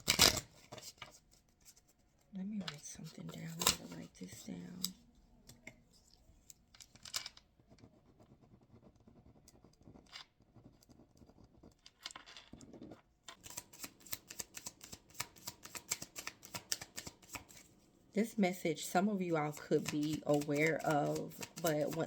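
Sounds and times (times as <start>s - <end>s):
pen scratching on paper: 7.6s - 11.9s, 19.0s - 22.0s.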